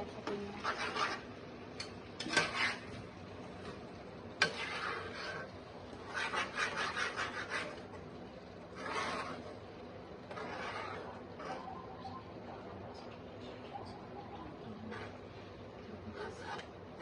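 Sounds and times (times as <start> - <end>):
spatula scraping paste in pan: 0.5 - 3.0, 4.4 - 8.0, 8.6 - 11.8, 14.8 - 15.3, 16.0 - 17.0.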